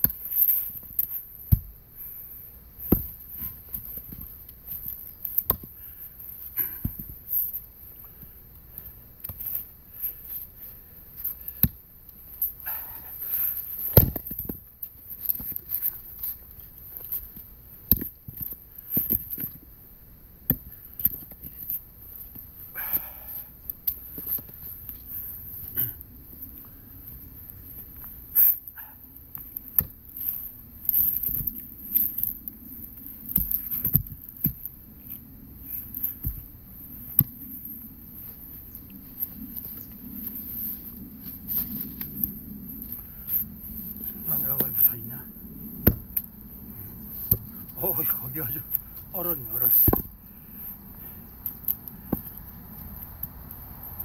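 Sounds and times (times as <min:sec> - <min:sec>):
knocks and thuds of logs: 0:13.8 - 0:14.6, 0:45.8 - 0:46.1, 0:49.7 - 0:50.2
axe chopping firewood: 0:13.9 - 0:14.3.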